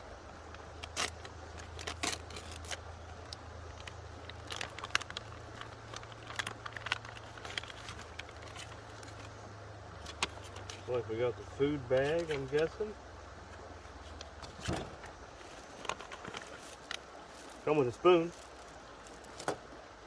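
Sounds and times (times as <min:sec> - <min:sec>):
plastic packaging crinkling: 0:00.8 - 0:09.3.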